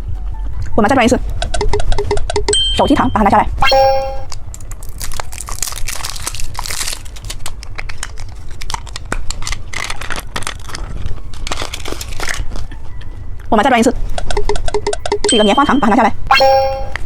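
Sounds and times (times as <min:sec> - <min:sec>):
plastic packaging crinkling: 0:04.3 - 0:12.7.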